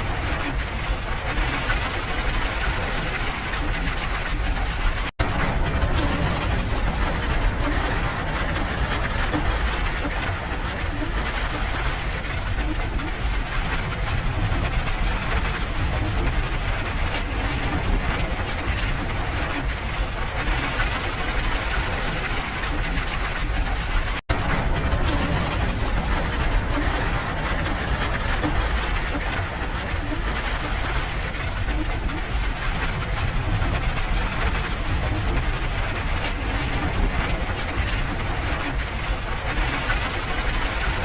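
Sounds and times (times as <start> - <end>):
low rumble: 0.0 - 41.0
steady rain hiss: 5.2 - 19.5, 24.3 - 41.0.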